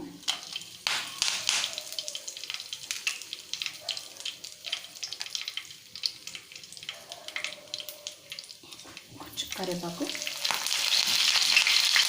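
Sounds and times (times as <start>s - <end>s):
spices sizzling in hot oil: 0.0s - 12.0s
crackling pops: 0.8s - 3.2s.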